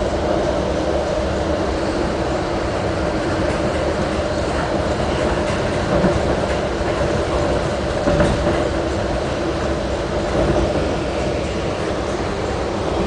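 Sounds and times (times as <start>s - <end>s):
wheels rumbling on rails: 0.0s - 13.0s
wheels clacking over rail joints: 2.7s - 12.4s.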